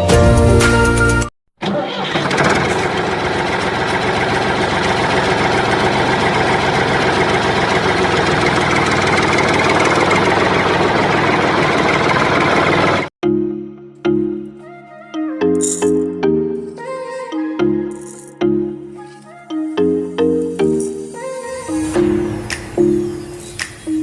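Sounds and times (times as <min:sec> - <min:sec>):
engine idling: 0:02.0 - 0:13.1.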